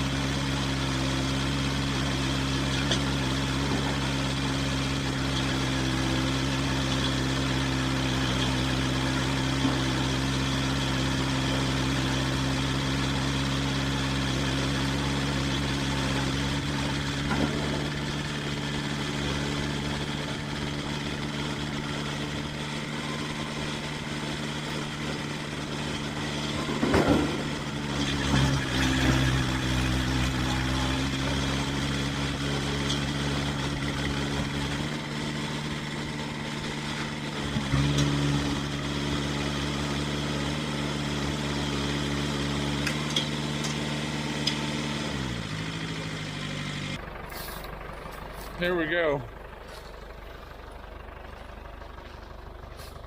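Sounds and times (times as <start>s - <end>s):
tractor engine running: 0.0s - 53.0s
knocks and rattles: 16.6s - 22.5s, 24.6s - 35.0s.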